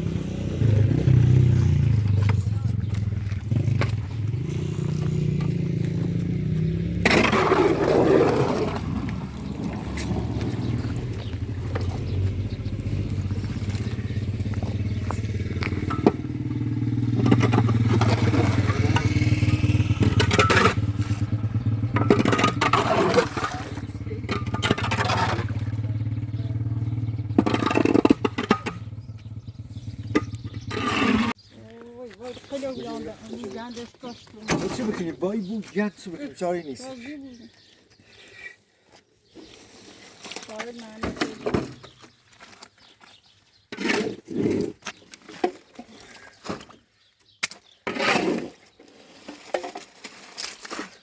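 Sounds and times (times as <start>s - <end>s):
scraping and clattering: 17.0s - 26.0s, 26.6s - 28.9s.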